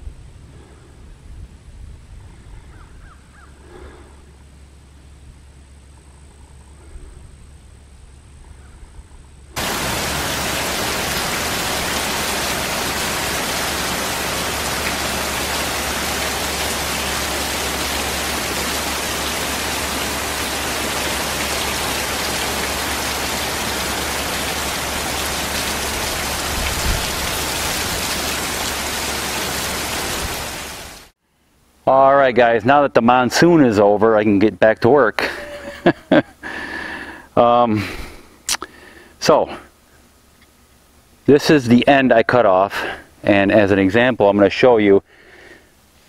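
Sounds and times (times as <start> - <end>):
heavy rain pouring: 9.6 - 31.2.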